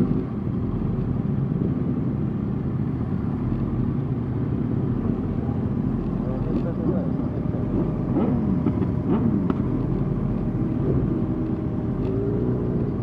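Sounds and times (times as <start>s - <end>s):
motorcycle engines revving: 4.7s - 13.0s.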